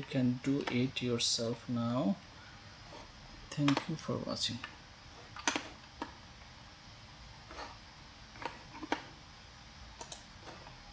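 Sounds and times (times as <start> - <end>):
sharp computer clicks: 10.0 - 10.3.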